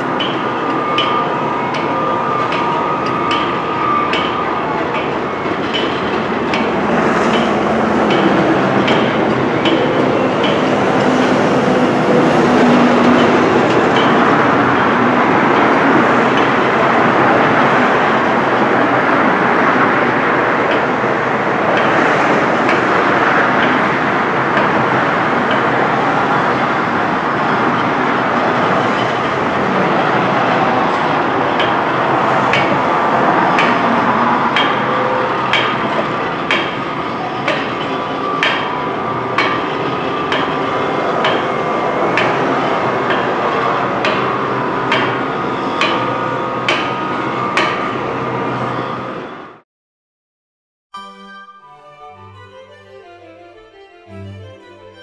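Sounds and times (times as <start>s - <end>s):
train wheels clicking on rails: 0.0s - 48.7s
train rumble: 0.0s - 49.2s.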